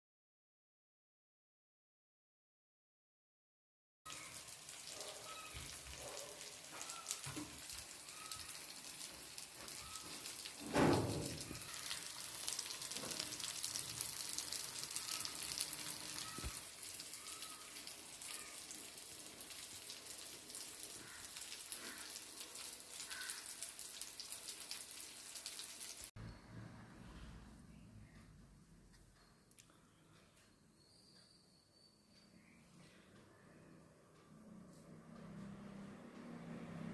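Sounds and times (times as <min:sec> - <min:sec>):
fish frying in hot oil: 0:04.1 - 0:26.2.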